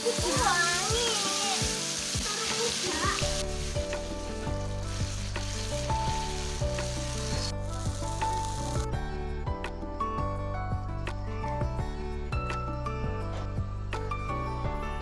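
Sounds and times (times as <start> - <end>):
paste sizzling in hot oil: 0.0 - 8.9
soft background music: 0.0 - 15.0.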